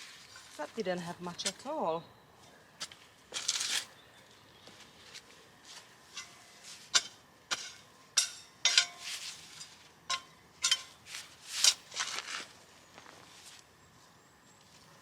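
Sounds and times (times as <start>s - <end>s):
digging fork crunching soil: 2.8s - 3.9s, 6.1s - 13.3s.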